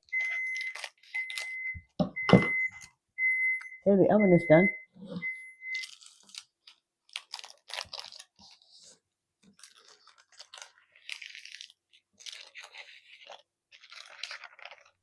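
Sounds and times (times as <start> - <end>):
wrapping tearing: 0.0 - 1.6, 5.7 - 15.0
packaging crinkling and rustling: 0.0 - 1.7, 5.7 - 15.0.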